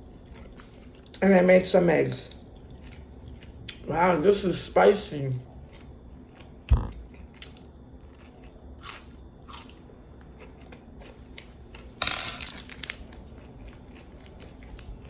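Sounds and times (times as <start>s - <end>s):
person chewing food: 0.0s - 1.2s, 2.3s - 3.9s, 5.4s - 12.0s, 12.8s - 15.0s.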